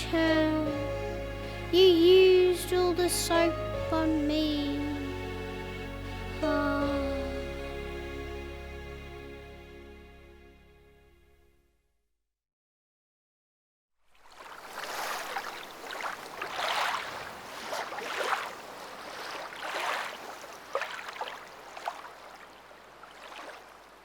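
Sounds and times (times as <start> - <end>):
surf washing onto beach: 14.2 - 24.0.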